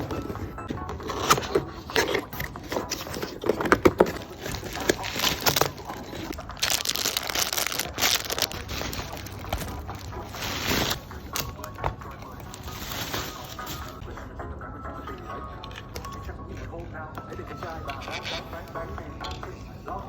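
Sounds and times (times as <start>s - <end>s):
packaging crinkling and rustling: 0.0s - 14.0s.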